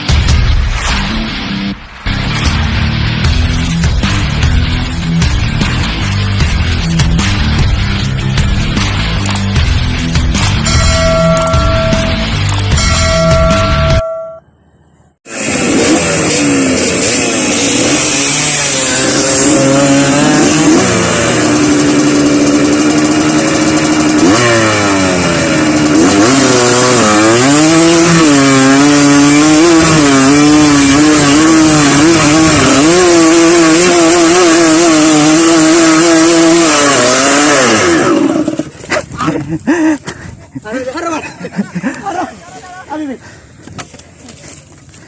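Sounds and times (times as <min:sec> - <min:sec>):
dirt bike engine revving: 0:15.3 - 0:39.8.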